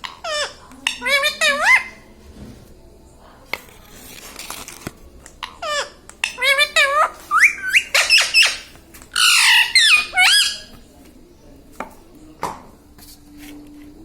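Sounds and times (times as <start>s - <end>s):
parrot shrill calls: 0.2s - 1.9s, 5.6s - 10.7s.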